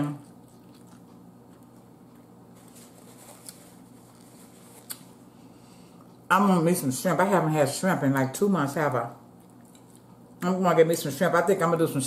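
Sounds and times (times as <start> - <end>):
faint chewing: 0.2 - 5.2, 9.4 - 10.2.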